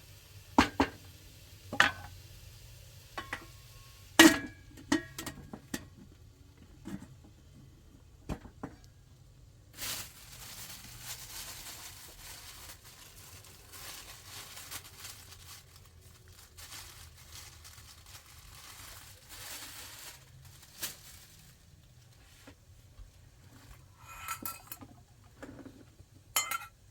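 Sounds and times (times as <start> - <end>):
plastic crinkling and rustling: 9.7 - 23.9.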